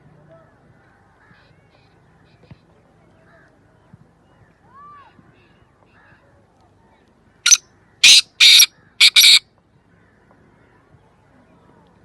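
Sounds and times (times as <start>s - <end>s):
bird harsh grating call: 7.5s - 9.4s.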